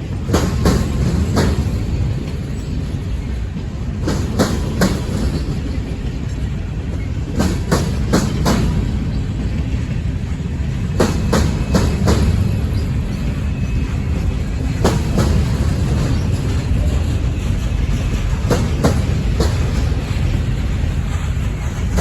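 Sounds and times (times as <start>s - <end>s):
train cars rumbling: 0.0s - 22.0s
wheels clicking over rail joints: 0.0s - 22.0s.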